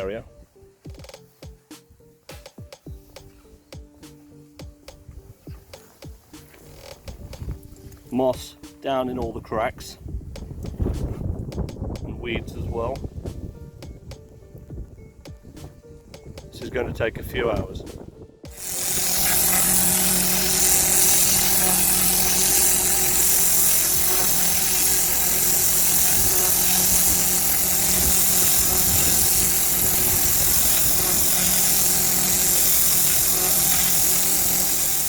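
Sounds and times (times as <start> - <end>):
machine hum: 18.5 - 35.0
pressure washer water jet hiss: 18.5 - 35.0.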